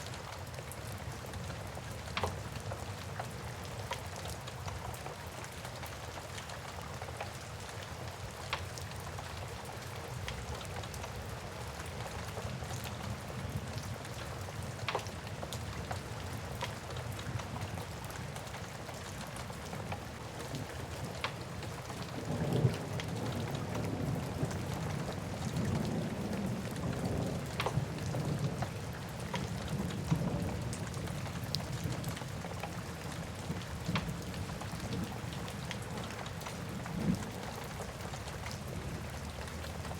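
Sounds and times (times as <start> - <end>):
steady rain: 0.0 - 39.9
low rumble of thunder: 21.8 - 39.9.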